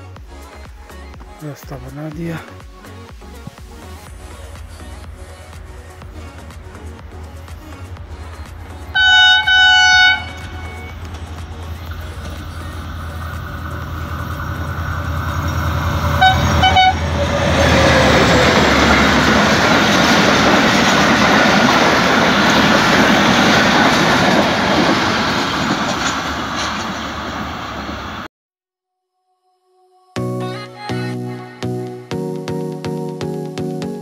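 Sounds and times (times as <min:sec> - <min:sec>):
diesel engine rumble: 0:03.0 - 0:28.0
wheel and rail noise: 0:03.6 - 0:28.3
train horn blasts: 0:09.0 - 0:11.1, 0:14.4 - 0:18.2.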